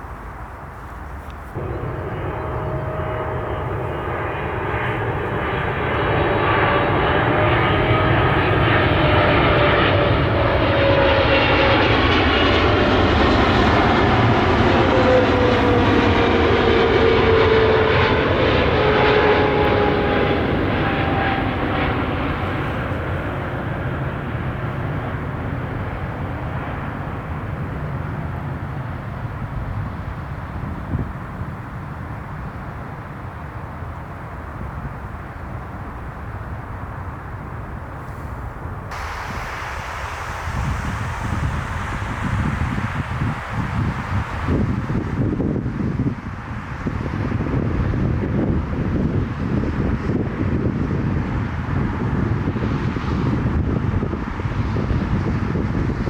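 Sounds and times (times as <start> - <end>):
jet engines passing by: 0.0 - 56.0
whining jet tones: 1.5 - 24.4, 38.9 - 45.6.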